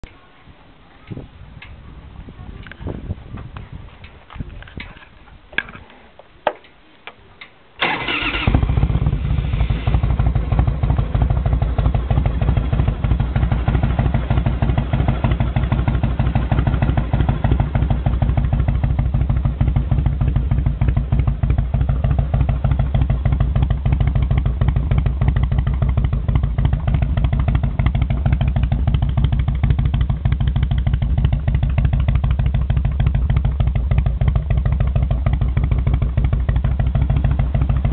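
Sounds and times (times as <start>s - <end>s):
motorcycle engine idling: 7.8s - 37.9s.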